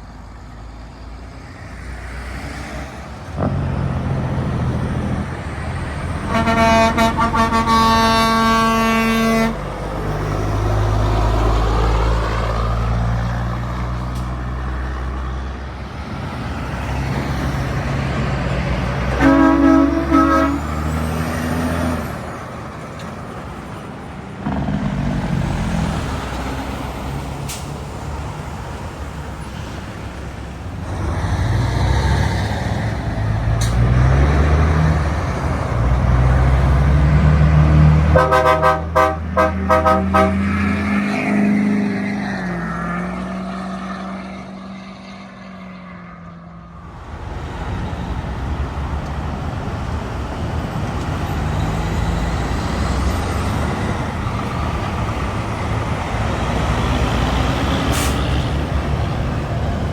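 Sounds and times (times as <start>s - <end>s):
truck engine pulling away: 0.0s - 46.1s, 46.8s - 59.9s
road traffic noise: 0.0s - 59.9s
truck horn toots: 6.1s - 9.8s, 19.1s - 21.1s, 38.0s - 41.4s.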